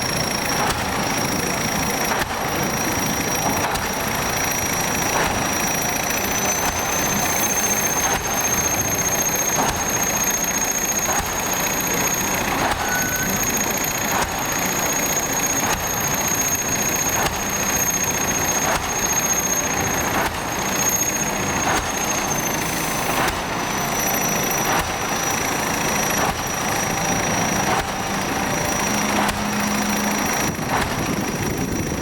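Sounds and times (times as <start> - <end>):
machine engine running: 0.0 - 32.0
thin high whine: 0.0 - 32.0
pile hammer striking: 26.1 - 31.8.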